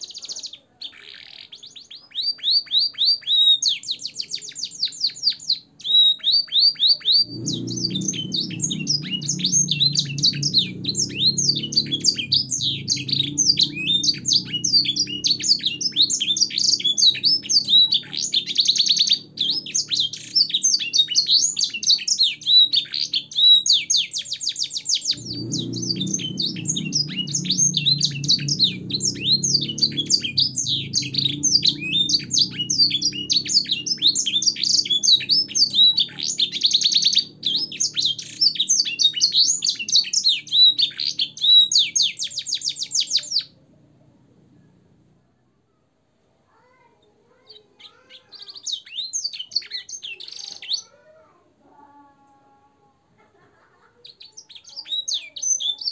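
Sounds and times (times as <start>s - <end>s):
canary singing trills: 0.0s - 45.1s, 46.6s - 51.2s, 53.8s - 55.9s
low background rumble: 7.1s - 42.2s, 43.4s - 45.4s.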